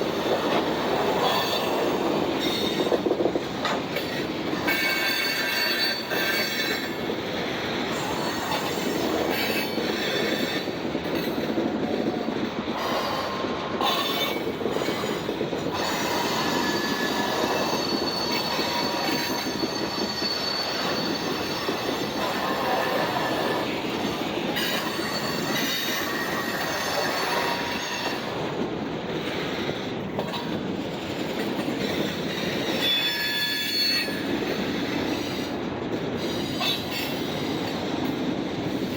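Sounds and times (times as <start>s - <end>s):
steel wheels rumbling on rail: 0.0s - 38.9s
high wheel squeals: 4.6s - 6.9s, 15.7s - 23.7s, 24.6s - 28.2s, 32.6s - 34.4s.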